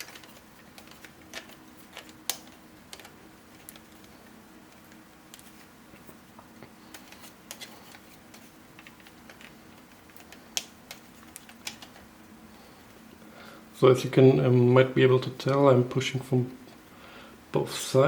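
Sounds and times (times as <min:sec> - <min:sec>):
faint steady hum: 0:00.0 - 0:18.0
plastic puzzle pieces clicking: 0:08.8 - 0:12.0.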